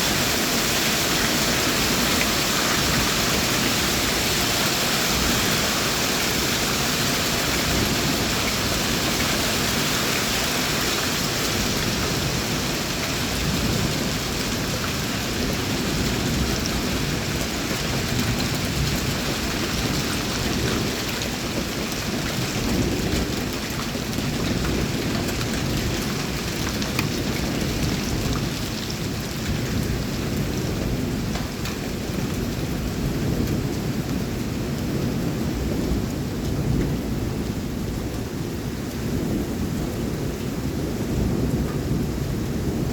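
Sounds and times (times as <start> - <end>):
heavy rain: 0.0 - 42.9
strong wind: 0.0 - 42.9
raindrop ticks: 31.3 - 31.8.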